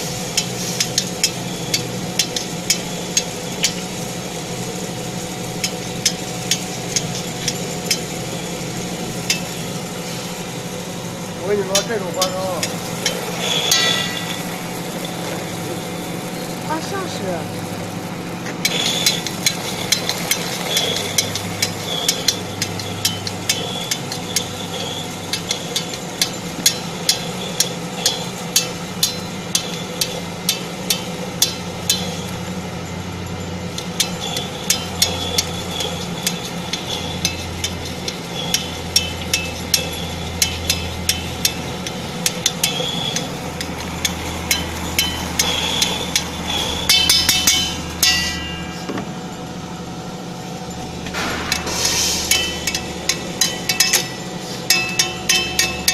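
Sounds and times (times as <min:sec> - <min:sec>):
grinder motor hum: 0:00.0 - 0:55.9
rattling burst: 0:51.1 - 0:54.4.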